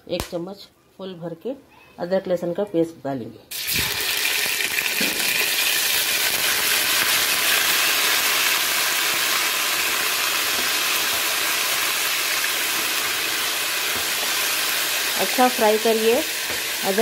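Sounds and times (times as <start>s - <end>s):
paste sizzling in hot oil: 3.5s - 17.0s.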